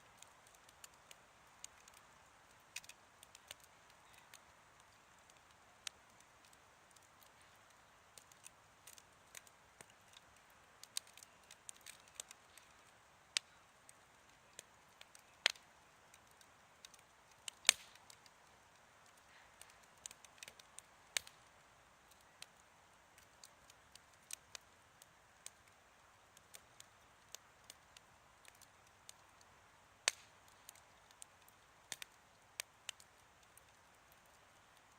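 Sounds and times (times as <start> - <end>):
campfire crackling: 0.0 - 34.9
faint low hiss: 0.0 - 34.9.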